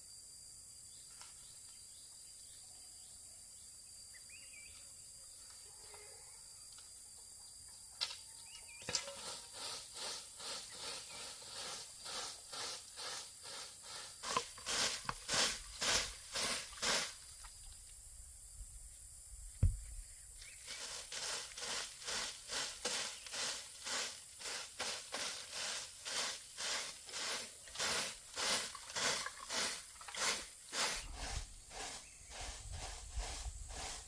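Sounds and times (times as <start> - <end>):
scraping strokes: 8.9 - 17.2, 20.6 - 34.0
dull thump: 19.6 - 20.0.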